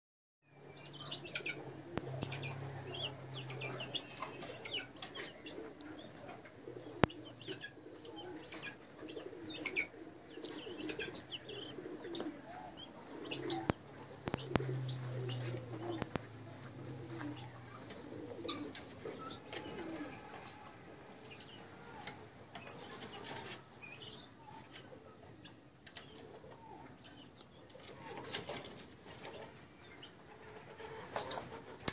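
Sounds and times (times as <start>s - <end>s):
small birds chirping: 0.5s - 31.7s
pigeons cooing: 0.6s - 31.9s.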